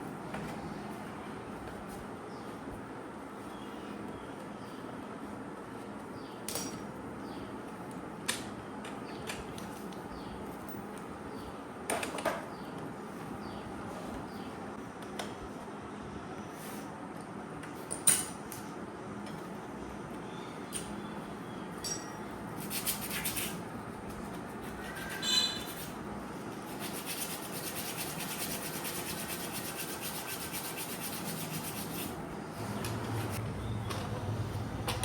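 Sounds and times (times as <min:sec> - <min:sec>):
short squeak: 0:25.0 - 0:25.8.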